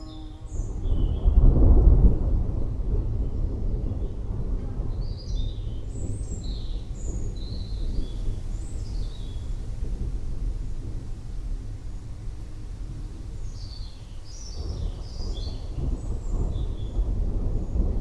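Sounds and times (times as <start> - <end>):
thunder rumbling: 0.0 - 18.0.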